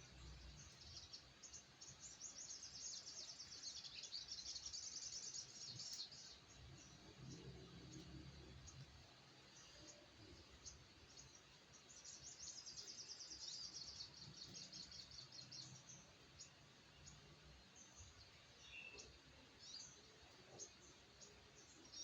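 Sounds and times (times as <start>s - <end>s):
small bird chirping: 0.0s - 22.0s.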